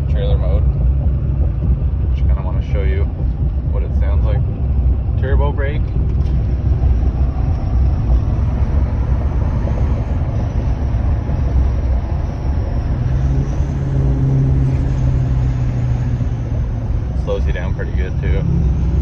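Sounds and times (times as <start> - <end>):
diesel truck exhaust rumble: 0.0 - 19.0.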